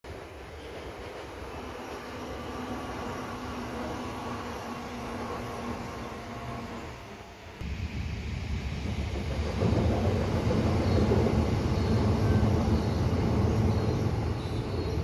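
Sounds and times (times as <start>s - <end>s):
train wheels rumbling on bridge: 7.6s - 15.0s.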